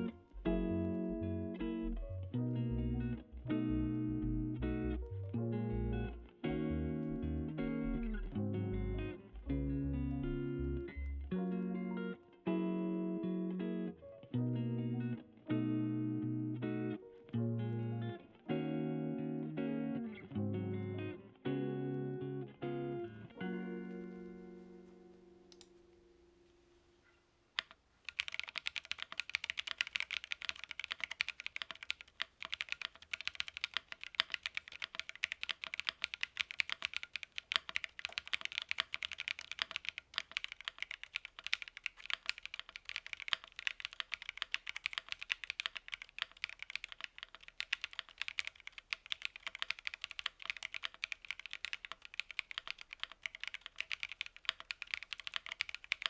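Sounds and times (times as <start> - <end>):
fast typing on mechanical keyboard: 27.6 - 56.0.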